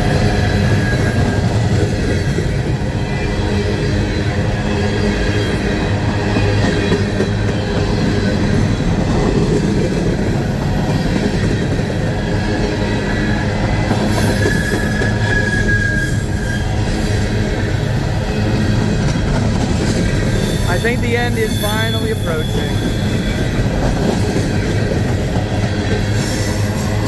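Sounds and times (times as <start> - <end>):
freight train cars rolling: 0.0 - 27.0
high wheel squeal: 14.1 - 17.1, 20.3 - 23.5.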